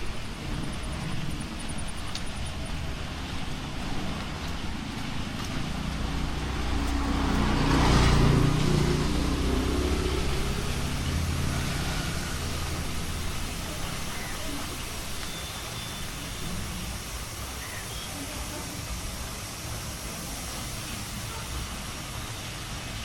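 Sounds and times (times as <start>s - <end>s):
vehicle driving past: 3.8s - 15.2s.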